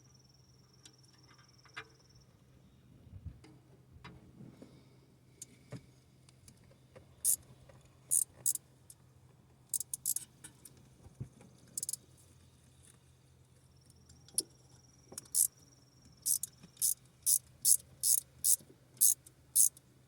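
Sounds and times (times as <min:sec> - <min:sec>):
hand tools clicking on metal: 0:09.7 - 0:10.3, 0:16.3 - 0:19.8.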